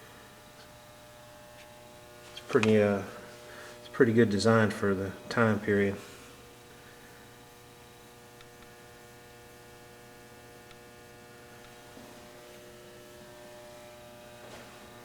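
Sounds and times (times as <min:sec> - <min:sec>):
faint electrical mains hum: 0:00.0 - 0:15.0.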